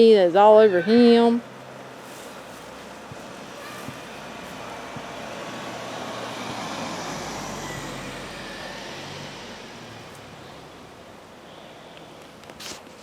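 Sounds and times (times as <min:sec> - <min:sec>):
vehicle passing by: 0:01.4 - 0:11.4.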